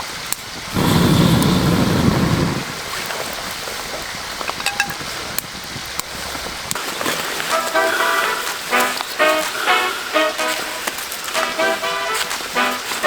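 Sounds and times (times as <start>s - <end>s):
light rain hissing: 0.0s - 13.0s
low rush: 0.6s - 3.3s.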